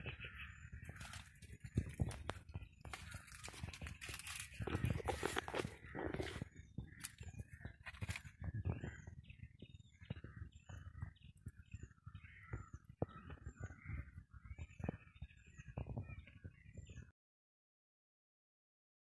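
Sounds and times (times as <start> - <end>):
bird high chirp: 0.0 - 17.1
faint bird calls: 0.0 - 17.1
rustling through leafy plants: 0.8 - 7.2.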